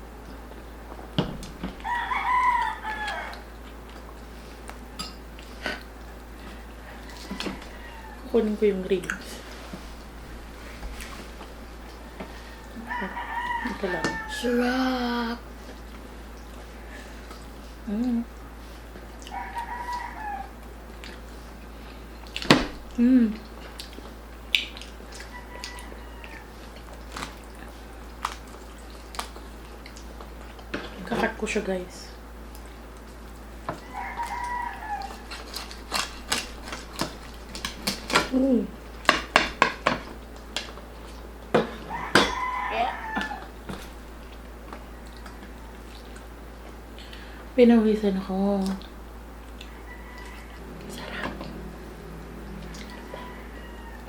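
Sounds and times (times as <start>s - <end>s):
rooster crowing: 1.8s - 3.5s, 6.8s - 8.4s, 11.8s - 14.7s, 19.3s - 20.6s, 25.2s - 26.7s, 33.7s - 35.6s, 41.6s - 43.6s, 49.6s - 54.0s
person chewing crispy food: 1.8s - 8.2s, 15.5s - 30.7s, 32.4s - 39.2s, 48.6s - 53.7s.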